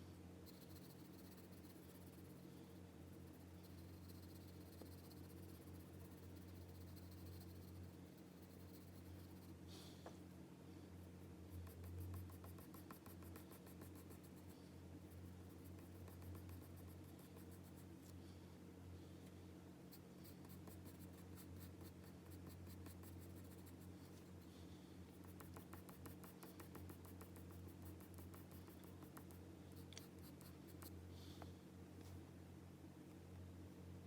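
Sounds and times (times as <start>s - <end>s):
steady low hum: 0.0s - 34.0s
pencil strokes on paper: 3.1s - 9.6s, 11.5s - 18.1s, 19.9s - 24.5s, 25.1s - 31.0s.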